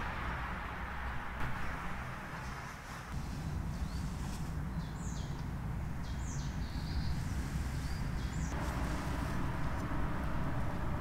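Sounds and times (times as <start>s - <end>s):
low outdoor rumble: 0.0s - 11.0s
small birds chirping: 3.1s - 9.1s.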